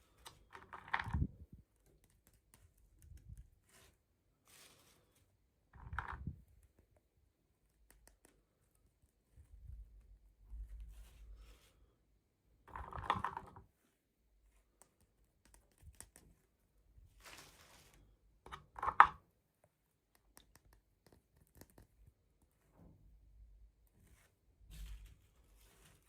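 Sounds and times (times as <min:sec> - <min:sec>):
small plastic clicks: 0:00.2 - 0:03.6
packaging rustling and scraping: 0:17.2 - 0:18.1.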